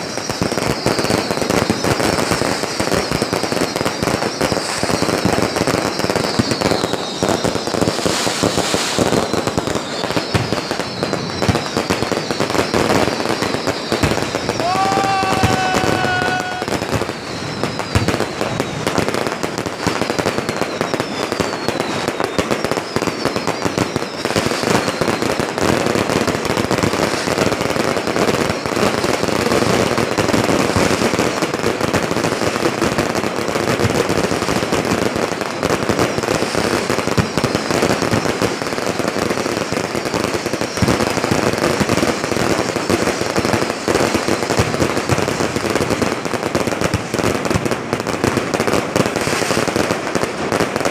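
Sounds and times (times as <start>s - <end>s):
falling firework whistles: 0.0s - 50.9s
fireworks crackling and popping: 0.0s - 50.9s.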